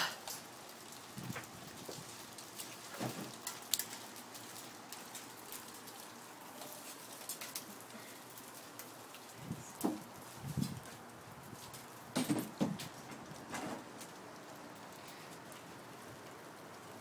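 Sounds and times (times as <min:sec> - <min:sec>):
hailstones ticking: 0:00.0 - 0:17.0
heavy rain falling: 0:00.0 - 0:17.0.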